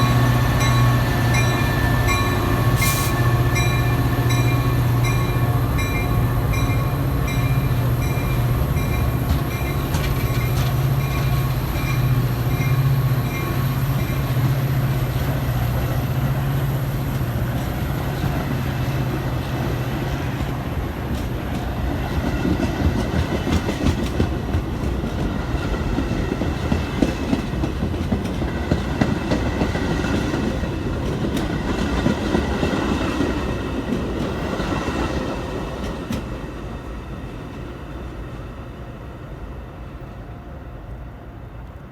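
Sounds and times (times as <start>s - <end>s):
train bell ringing: 0.0s - 14.9s
train wheel clatter: 0.0s - 16.1s, 17.0s - 36.4s
locomotive engine hum: 0.0s - 41.9s.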